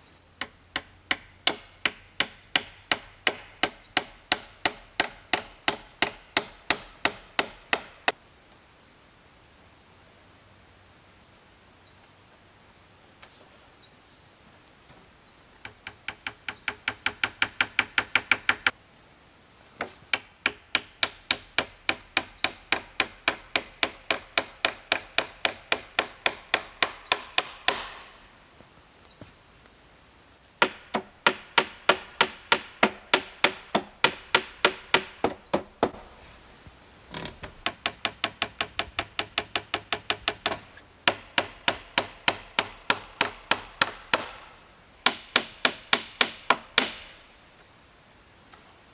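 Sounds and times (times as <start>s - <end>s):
hand tool striking wood: 0.4s - 8.2s, 15.6s - 18.8s, 19.8s - 28.2s, 30.6s - 36.1s, 37.4s - 47.2s.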